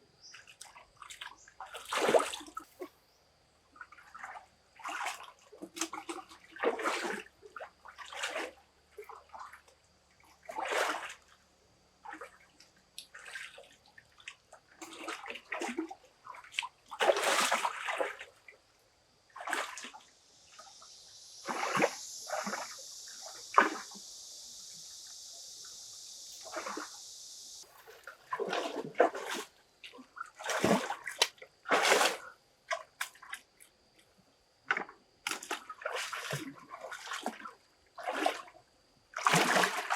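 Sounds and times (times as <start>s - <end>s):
water splashing and sloshing: 0.2s - 3.0s, 3.6s - 39.9s
steady hiss: 20.0s - 27.9s.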